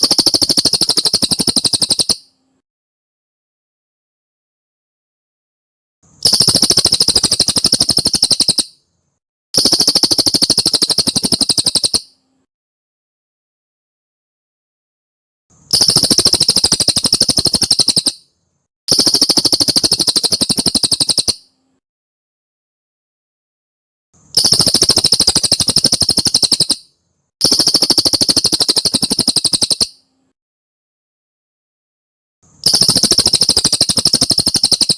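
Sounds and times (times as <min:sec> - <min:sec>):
high-pitched bird trill: 0:00.0 - 0:02.3, 0:06.2 - 0:08.8, 0:09.6 - 0:12.2, 0:15.7 - 0:18.3, 0:18.9 - 0:21.5, 0:24.4 - 0:30.0, 0:32.6 - 0:34.9.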